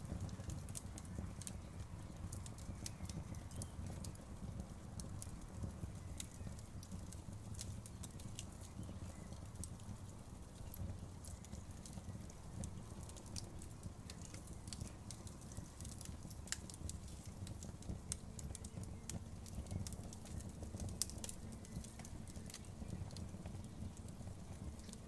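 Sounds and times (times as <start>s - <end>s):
campfire crackling and snapping: 0.0s - 25.0s
low fire rumble: 0.0s - 25.0s
sharp fire pops: 5.0s - 25.0s.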